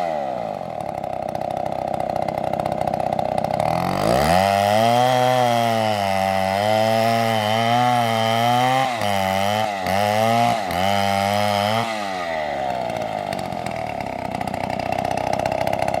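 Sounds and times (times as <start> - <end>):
chainsaw engine running: 0.0 - 16.0.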